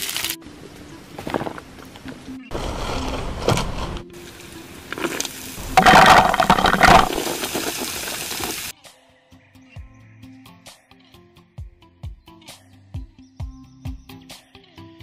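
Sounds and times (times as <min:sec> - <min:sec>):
food frying in hot oil: 0:00.0 - 0:00.4, 0:04.3 - 0:05.6, 0:07.2 - 0:08.7.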